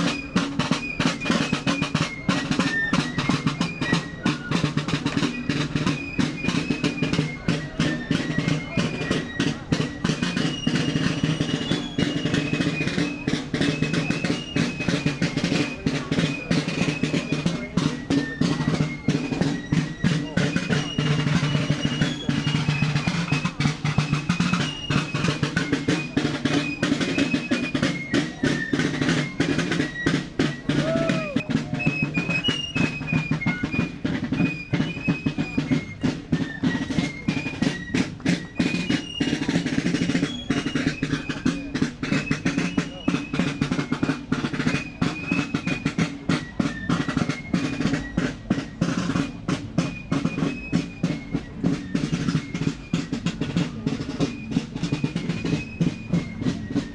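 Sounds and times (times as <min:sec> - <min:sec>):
snare drums beating and rolling: 0:00.0 - 0:56.9.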